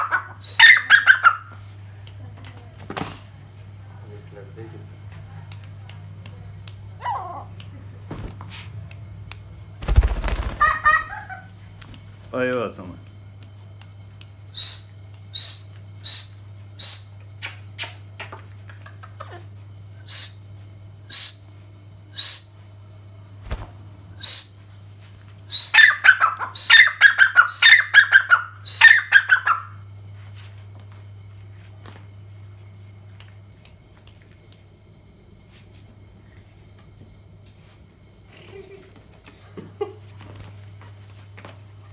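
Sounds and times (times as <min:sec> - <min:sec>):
partridge calling: 0:09.9 - 0:11.5.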